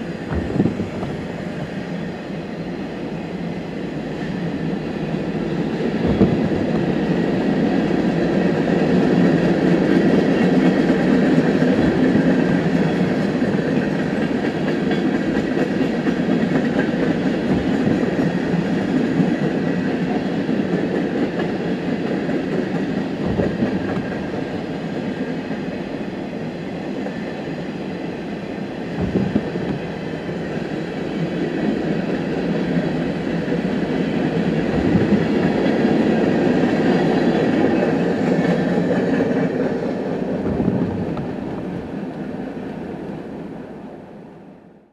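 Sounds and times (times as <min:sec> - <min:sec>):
train rumbling on track: 0:00.0 - 0:44.9
faint low knock: 0:06.0 - 0:06.8, 0:17.5 - 0:18.3.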